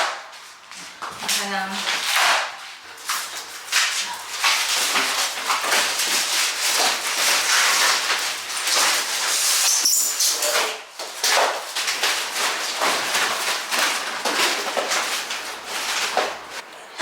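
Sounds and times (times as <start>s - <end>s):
appliance scraping and rustling: 2.0s - 16.6s
short high squeak: 9.7s - 10.6s.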